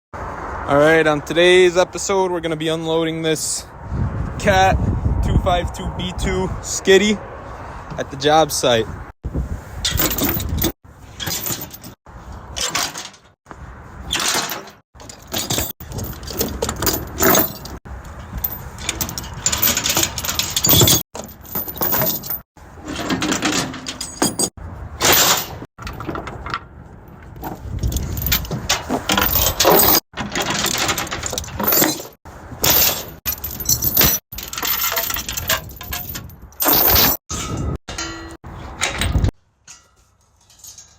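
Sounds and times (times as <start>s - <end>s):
metallic clanking and rattling: 9.8s - 13.4s, 14.1s - 40.9s.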